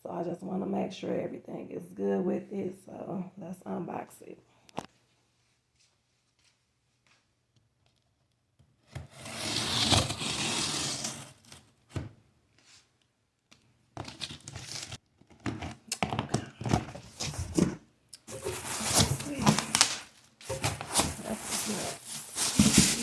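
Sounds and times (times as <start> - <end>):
cardboard box tearing: 9.1 - 11.5, 17.0 - 23.0
packaging crinkling and rustling: 14.0 - 23.0.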